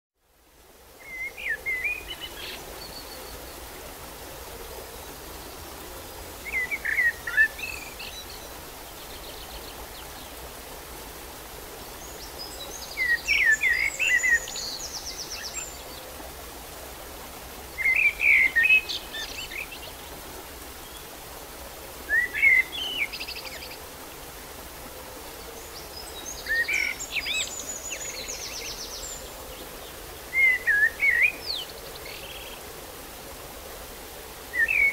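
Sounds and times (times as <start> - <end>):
steady background hiss: 0.2 - 34.9
songbird whistling phrases: 30.4 - 31.5.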